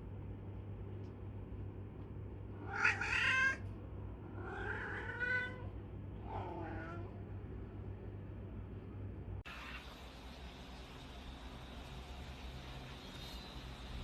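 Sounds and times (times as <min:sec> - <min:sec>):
steady low hum: 0:00.0 - 0:14.0
cat meowing: 0:02.6 - 0:03.7, 0:04.3 - 0:07.2.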